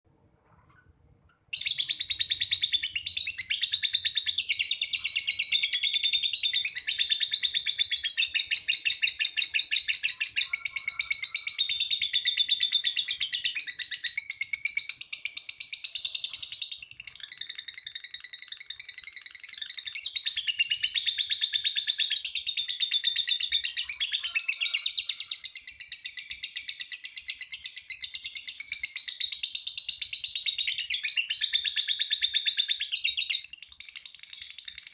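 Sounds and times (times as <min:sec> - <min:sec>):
lovebird shrill chirping chatter: 0:01.6 - 0:21.2, 0:22.6 - 0:29.3.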